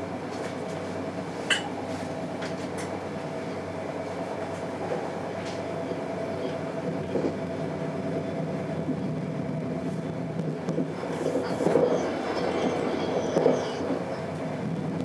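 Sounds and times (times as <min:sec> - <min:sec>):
diesel train drone: 0:00.0 - 0:15.0
wheel-on-rail noise: 0:04.2 - 0:15.0.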